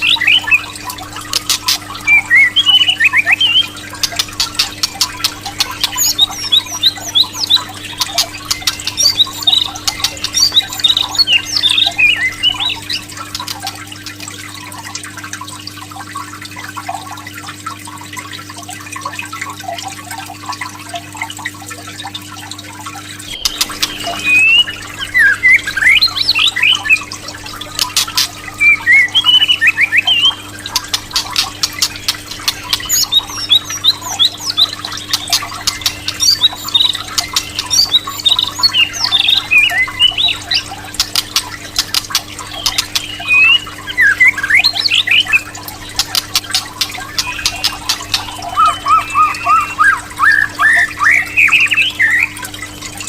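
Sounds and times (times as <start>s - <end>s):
bird chirping song: 0.0s - 14.2s, 23.3s - 52.7s
sharp clicking bird calls: 0.0s - 15.1s, 23.2s - 53.0s
low electrical hum: 0.0s - 53.0s.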